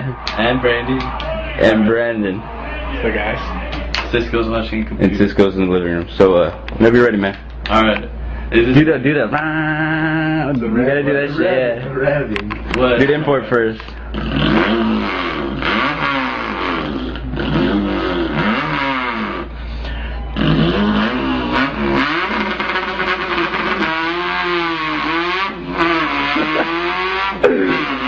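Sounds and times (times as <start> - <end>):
man imitating engine revving: 9.4 - 10.6, 14.0 - 19.7, 20.3 - 28.0.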